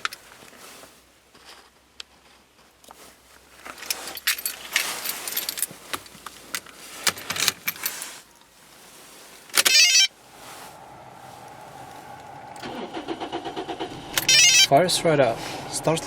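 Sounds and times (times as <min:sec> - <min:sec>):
car keys jangling: 0:02.9 - 0:08.6, 0:09.4 - 0:10.1, 0:12.2 - 0:14.7
car engine starting and idling: 0:03.0 - 0:16.0.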